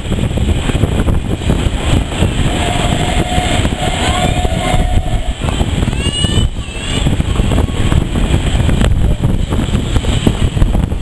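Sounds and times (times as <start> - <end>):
train carriage rumbling: 0.0 - 11.0
steady high tone: 2.5 - 5.5.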